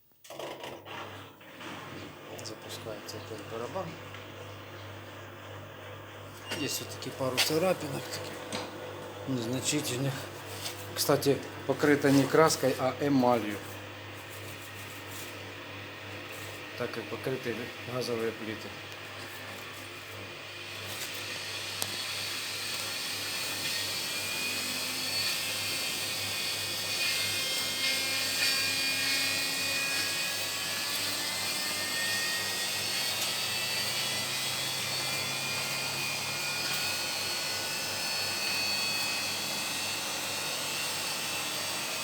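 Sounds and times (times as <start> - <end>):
washing machine spinning: 19.0 - 41.3.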